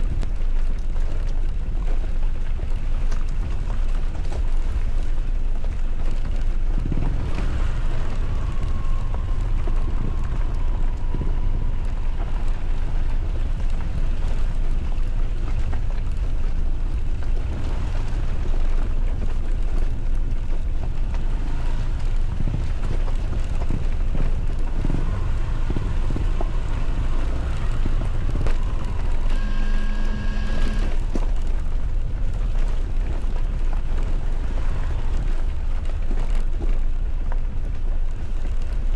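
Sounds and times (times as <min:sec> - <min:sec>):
motorcycle engine running: 0:00.0 - 0:38.9
wind rush on microphone: 0:00.0 - 0:38.9
steady tone: 0:25.0 - 0:31.4.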